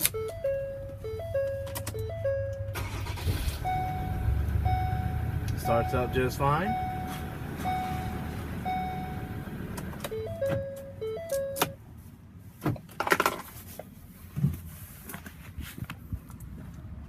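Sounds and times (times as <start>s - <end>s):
dashboard warning chime: 0.0s - 11.8s
diesel engine running: 0.1s - 10.6s.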